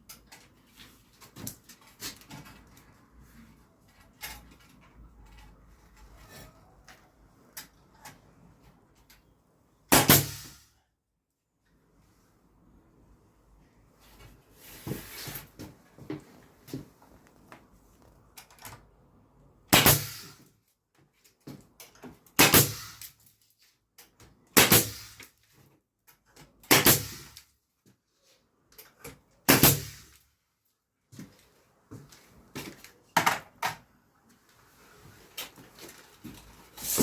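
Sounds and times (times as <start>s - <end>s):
handling and scraping noises: 0.0s - 9.3s, 13.8s - 18.6s, 31.1s - 37.0s
nail gun shots: 9.9s - 10.6s, 19.7s - 20.4s, 22.4s - 23.1s, 24.5s - 25.3s, 26.7s - 27.4s, 29.5s - 30.1s.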